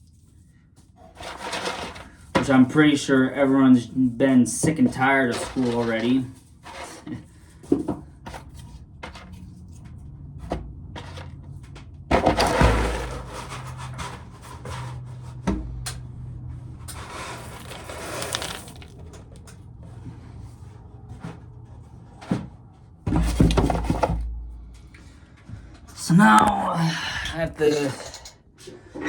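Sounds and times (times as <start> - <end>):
scraping and rattling: 1.0 - 2.6, 4.7 - 7.3, 10.9 - 15.4, 16.6 - 19.6, 23.1 - 25.2
corn kernels rattling into container: 16.9 - 19.1
low hum: 23.0 - 26.0.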